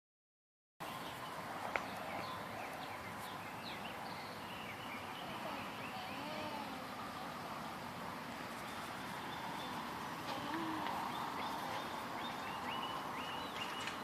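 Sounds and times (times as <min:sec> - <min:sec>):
birds chirping: 0:00.8 - 0:14.0
outdoor background hum: 0:00.8 - 0:14.0.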